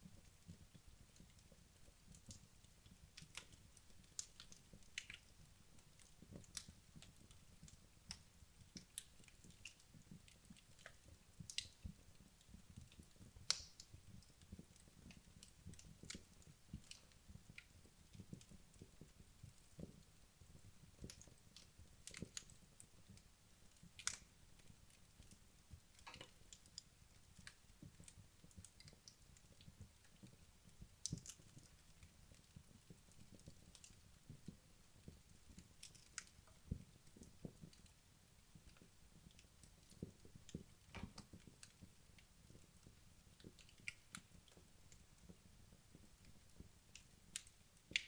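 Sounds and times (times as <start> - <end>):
logs popping and snapping: 13.4 - 13.9, 31.0 - 31.7, 38.7 - 41.9.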